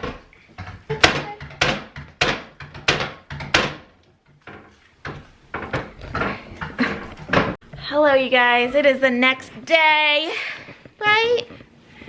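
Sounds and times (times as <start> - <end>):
sharp knocks: 0.0 - 6.4.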